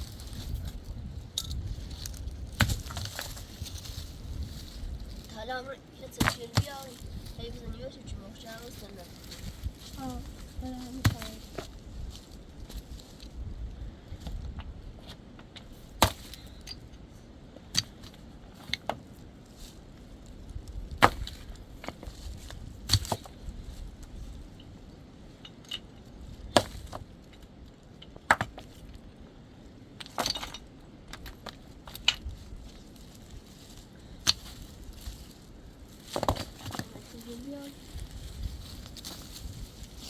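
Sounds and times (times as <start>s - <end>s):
hand tool striking wood: 16.0s - 16.4s.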